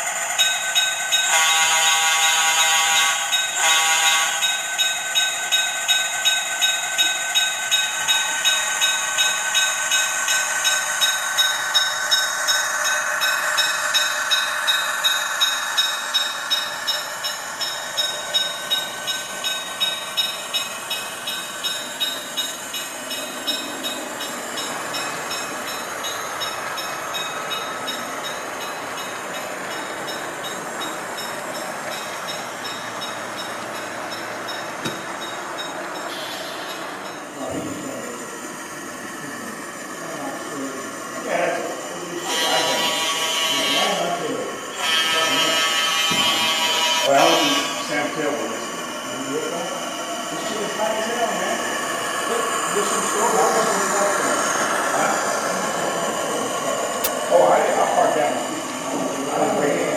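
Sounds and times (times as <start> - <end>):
rhythmic engine pulsing: 0.0 - 59.9
model locomotive horn: 1.3 - 4.4, 42.2 - 44.2, 44.8 - 47.9.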